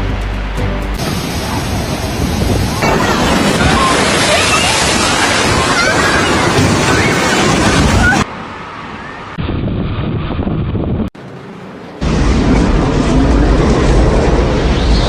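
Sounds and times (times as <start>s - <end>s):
wind buffeting microphone: 1.0s - 8.3s, 8.9s - 11.2s
waves breaking: 1.0s - 9.4s.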